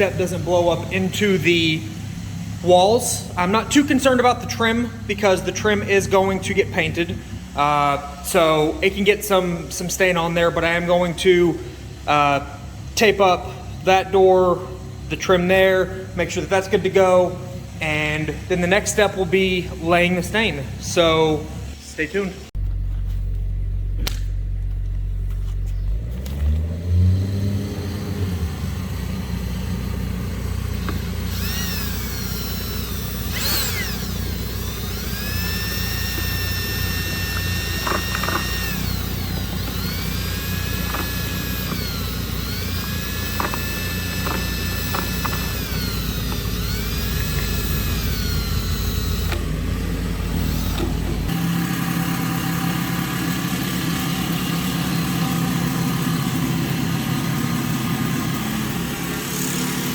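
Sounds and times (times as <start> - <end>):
construction machinery engine: 0.0 - 59.9
high whine: 27.9 - 51.5.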